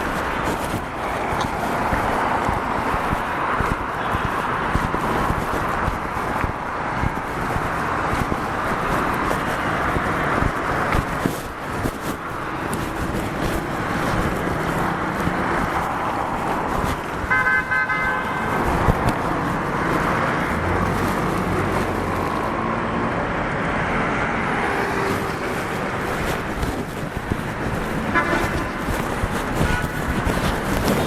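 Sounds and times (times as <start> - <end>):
city street traffic: 0.0 - 31.0
car horn honking: 17.3 - 18.6, 28.1 - 28.8, 29.6 - 29.9.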